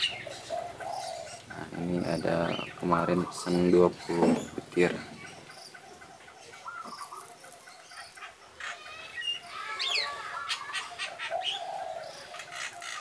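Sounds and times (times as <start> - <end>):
birds chirping: 0.0 - 13.0
low warbling bird call: 0.0 - 13.0.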